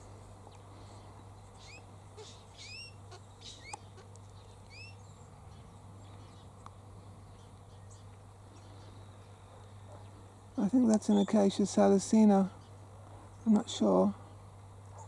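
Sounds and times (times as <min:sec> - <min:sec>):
bird chirping: 0:00.1 - 0:10.2.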